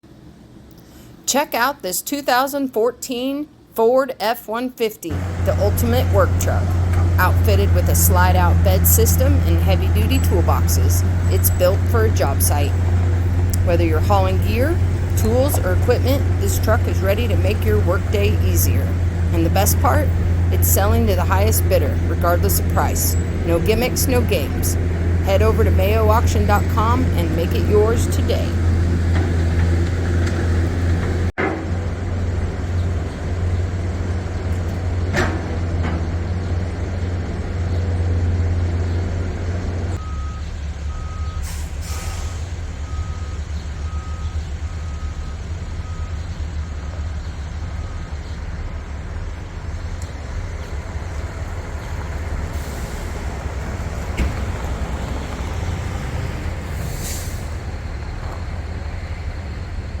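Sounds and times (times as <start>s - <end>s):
backup alarm beeping: 4.5s - 28.8s, 40.0s - 41.7s, 42.8s - 46.8s
truck engine running: 5.1s - 60.0s.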